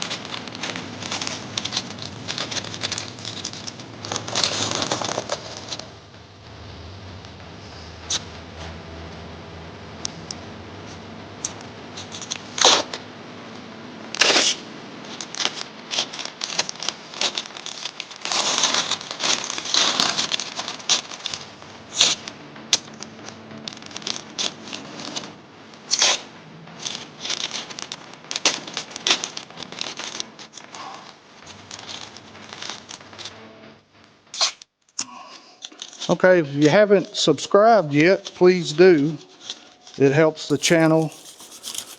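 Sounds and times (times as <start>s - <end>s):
paper crinkling: 40.5s - 41.9s
tape pulled and torn: 40.5s - 41.9s.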